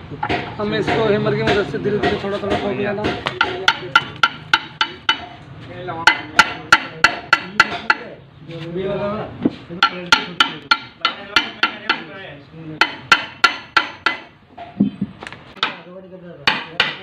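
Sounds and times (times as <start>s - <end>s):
hammer tapping metal plate: 0.2s - 5.4s, 6.1s - 8.1s, 9.8s - 12.1s, 12.8s - 15.0s, 16.5s - 17.0s.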